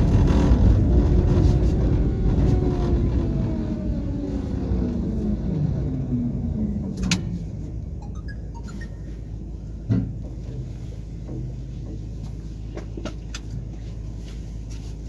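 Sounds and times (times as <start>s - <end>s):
electric motors whining down: 0.0s - 8.0s
running gear rumble: 0.0s - 8.0s.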